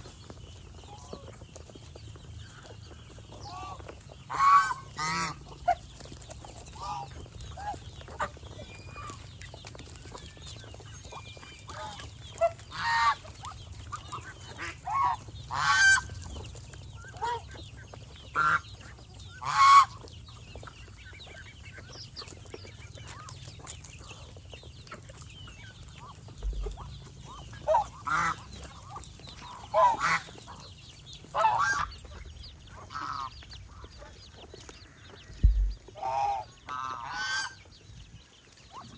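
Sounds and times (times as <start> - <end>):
geese honking: 3.4 - 5.8, 6.8 - 9.2, 11.7 - 16.1, 18.3 - 20.0, 25.9 - 34.1, 34.9 - 37.6
faint low hum: 26.0 - 28.0, 34.9 - 37.1.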